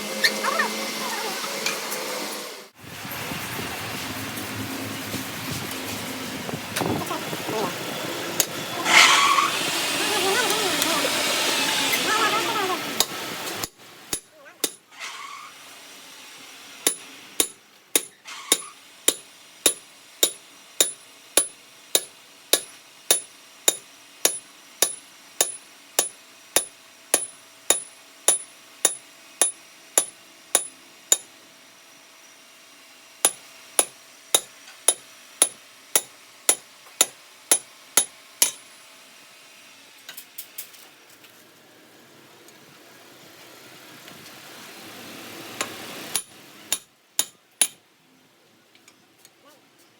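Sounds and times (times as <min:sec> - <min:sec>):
hammer tapping metal: 0:14.1 - 0:14.8, 0:16.9 - 0:31.3, 0:33.3 - 0:38.6, 0:46.1 - 0:47.8.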